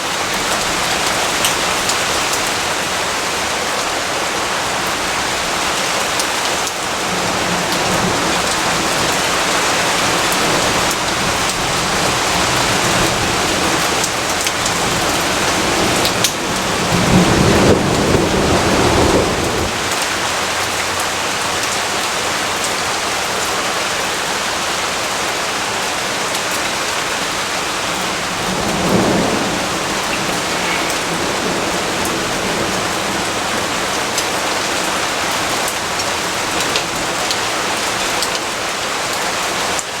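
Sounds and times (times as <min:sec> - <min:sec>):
steady rainfall: 0:00.0 - 0:40.0
low roll of thunder: 0:07.0 - 0:20.2, 0:27.7 - 0:34.7.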